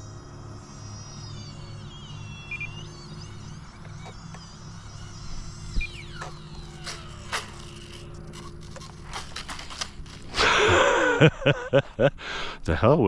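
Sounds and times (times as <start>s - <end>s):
electric model jet fan whine: 0.0s - 13.0s
airframe clicks and scrapes on ground: 5.8s - 10.5s.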